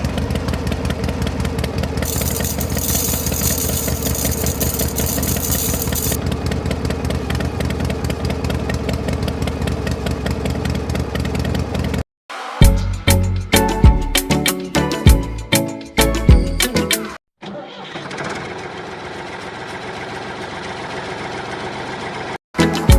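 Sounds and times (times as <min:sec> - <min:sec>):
small engine chugging: 0:00.0 - 0:12.0
music: 0:12.3 - 0:17.2, 0:22.6 - 0:22.9.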